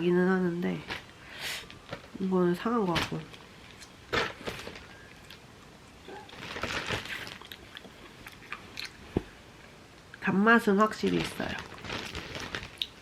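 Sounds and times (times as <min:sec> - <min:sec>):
person chewing fruit: 0:05.0 - 0:09.4.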